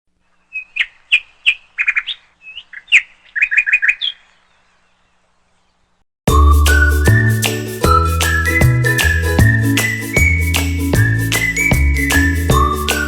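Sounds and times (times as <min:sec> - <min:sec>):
small bird chirping: 0:00.2 - 0:06.0
music: 0:06.3 - 0:13.0.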